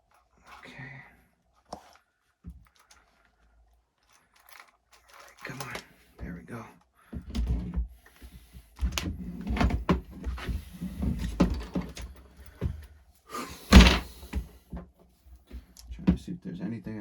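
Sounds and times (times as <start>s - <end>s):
toy parts knocking and clicking: 4.0s - 5.9s.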